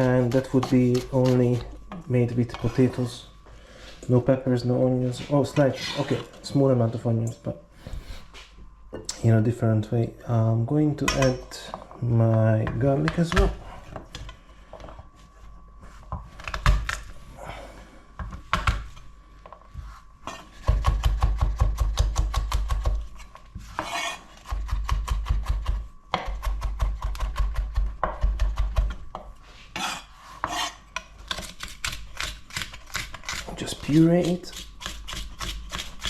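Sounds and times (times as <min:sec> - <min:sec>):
knife chopping on cutting board: 0:20.3 - 0:23.0.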